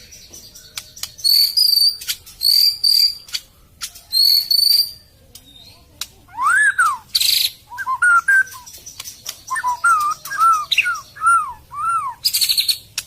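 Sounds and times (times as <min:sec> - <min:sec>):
songbird whistling: 0:00.7 - 0:03.3, 0:04.1 - 0:05.0, 0:06.3 - 0:08.8, 0:09.5 - 0:12.8.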